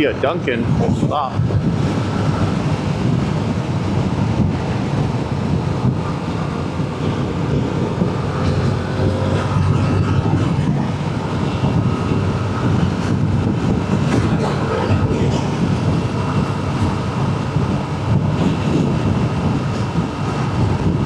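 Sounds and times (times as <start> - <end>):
road noise: 0.0 - 21.0
wind buffeting microphone: 0.0 - 21.0
motorcycle engine: 5.9 - 20.4.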